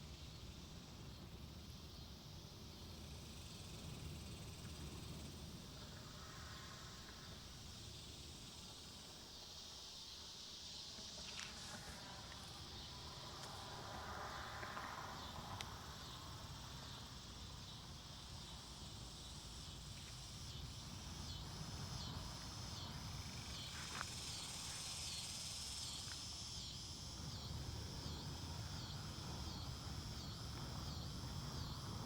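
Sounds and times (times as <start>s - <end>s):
insects pulsing calls: 0.0s - 32.0s
low wind rumble: 11.7s - 32.0s.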